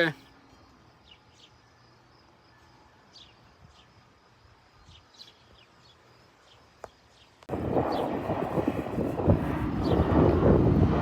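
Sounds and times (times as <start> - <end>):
faint bird chirps: 0.2 - 7.4.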